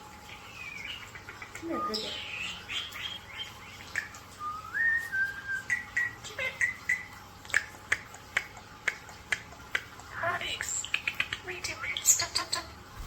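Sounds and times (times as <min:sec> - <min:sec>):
whistled notes: 0:04.4 - 0:06.2.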